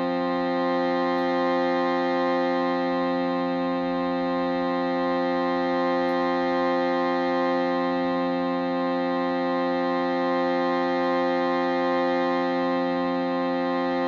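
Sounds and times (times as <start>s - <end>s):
shruti box and singing bowl drone: 0.0s - 14.0s.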